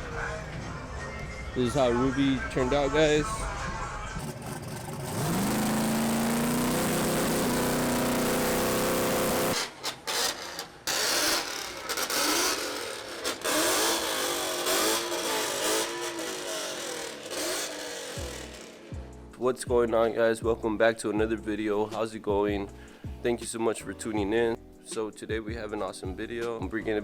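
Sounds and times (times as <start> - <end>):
car engine revving: 4.2 - 19.0.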